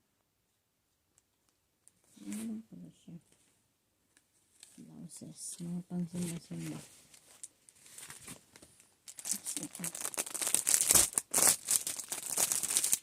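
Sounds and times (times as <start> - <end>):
packaging crinkling and rustling: 6.2 - 13.0.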